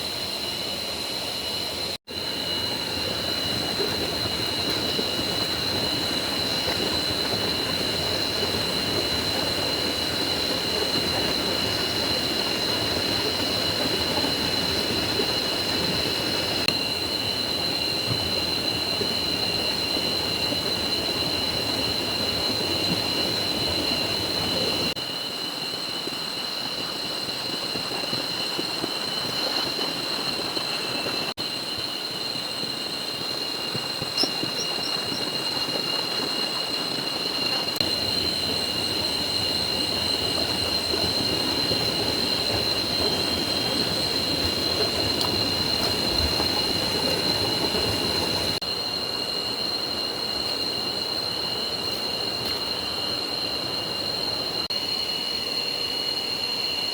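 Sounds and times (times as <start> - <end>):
stream rushing: 33.9 - 48.6.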